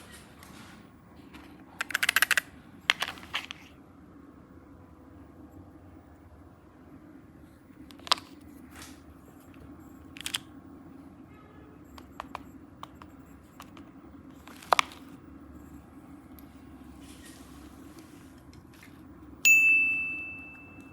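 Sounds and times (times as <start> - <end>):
steady low hum: 0.0 - 20.9
objects clicking and tapping: 1.8 - 3.7, 12.0 - 13.9.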